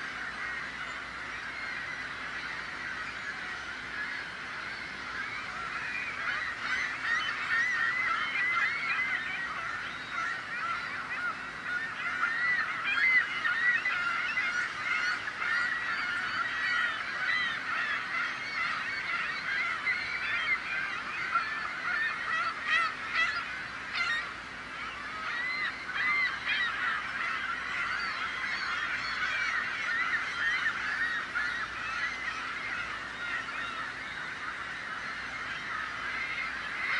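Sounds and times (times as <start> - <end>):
gulls calling: 0.0 - 36.9.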